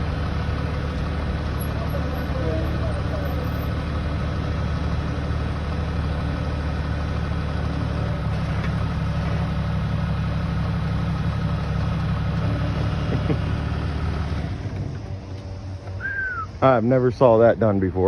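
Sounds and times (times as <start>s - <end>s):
forklift engine running: 0.0s - 18.0s.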